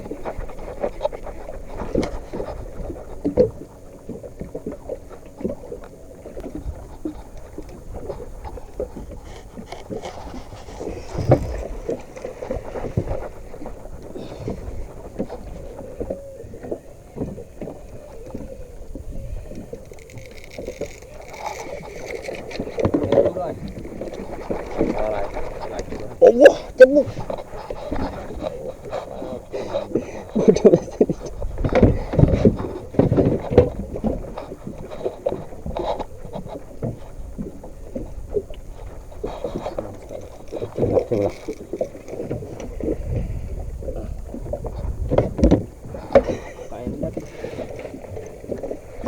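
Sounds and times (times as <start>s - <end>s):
water slapping against hull: 0.0s - 49.0s
wind on microphone: 0.0s - 49.0s
irregular knocks and clatter: 27.2s - 37.1s, 44.3s - 48.7s.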